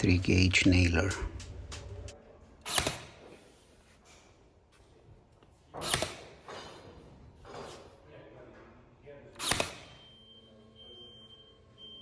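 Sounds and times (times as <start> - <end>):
pneumatic nailer firing: 2.6 - 3.2, 5.8 - 6.4, 9.4 - 10.0.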